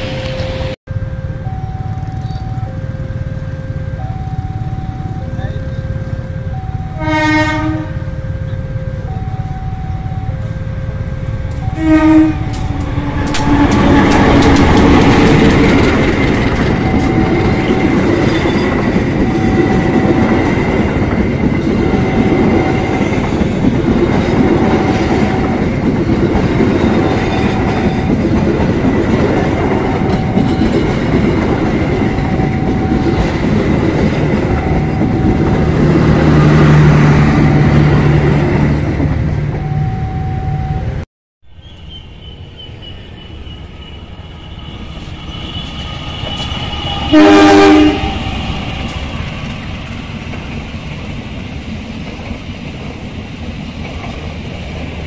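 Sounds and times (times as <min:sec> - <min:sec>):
train wheel and rail noise: 0:00.0 - 0:55.0
clickety-clack over rail joints: 0:11.2 - 0:37.0, 0:45.7 - 0:55.0.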